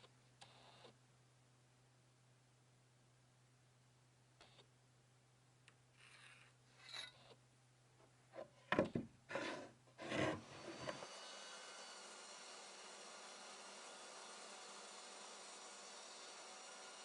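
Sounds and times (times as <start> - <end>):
wood scraped by hand: 9.3 - 11.0.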